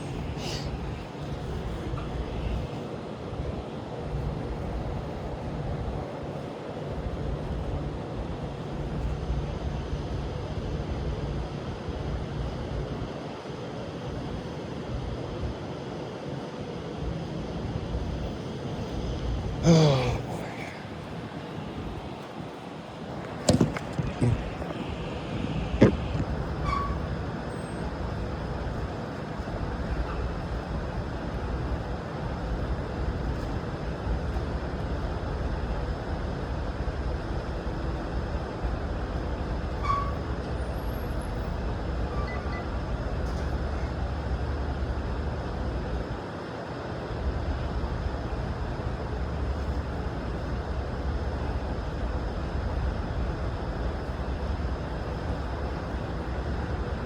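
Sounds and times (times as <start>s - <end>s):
traffic rumble: 0.0s - 13.0s, 17.0s - 42.2s.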